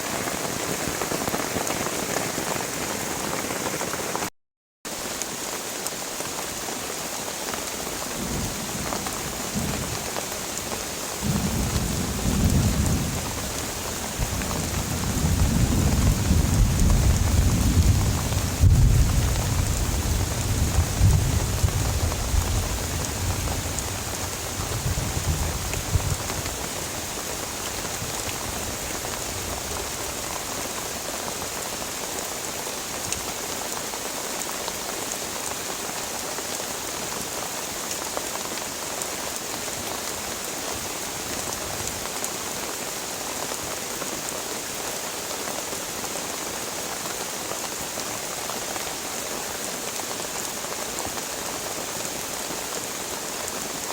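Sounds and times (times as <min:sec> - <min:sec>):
heavy rain falling: 0:00.0 - 0:04.3, 0:04.9 - 0:53.9
low thunder rumble: 0:11.2 - 0:26.6.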